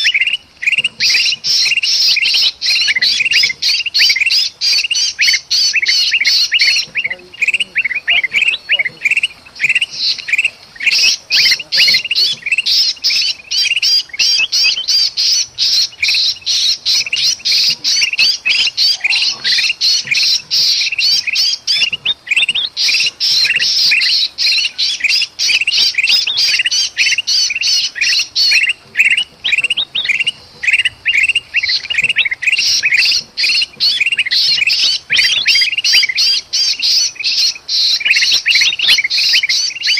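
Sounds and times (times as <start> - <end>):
birds chattering alarm calls: 0.0 - 39.9.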